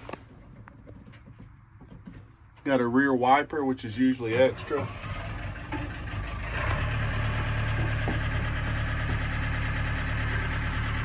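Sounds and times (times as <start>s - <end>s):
tractor diesel engine idling: 2.7s - 11.0s.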